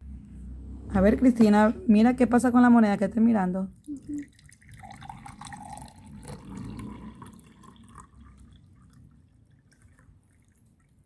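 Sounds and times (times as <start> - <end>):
water trickling into a glass: 3.8 - 11.0.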